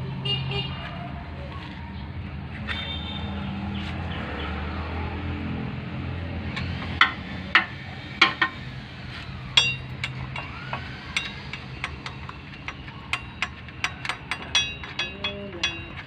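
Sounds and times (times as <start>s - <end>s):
metal tools tapping on metal: 6.5s - 8.7s, 9.5s - 16.0s.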